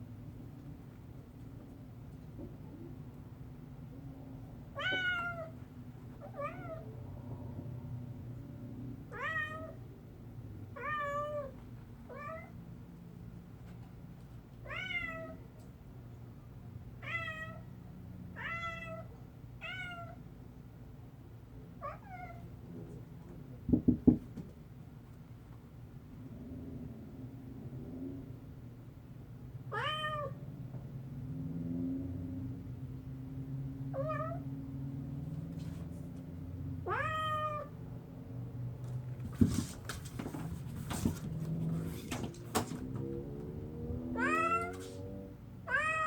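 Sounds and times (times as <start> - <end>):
cat meowing: 4.8 - 5.6, 6.2 - 6.9, 9.1 - 9.8, 10.8 - 12.5, 14.6 - 15.4, 17.0 - 17.6, 18.4 - 20.2, 29.7 - 30.4, 34.0 - 34.4, 36.8 - 37.8, 44.1 - 45.0, 45.6 - 46.0
sharp knocks: 23.7 - 24.6.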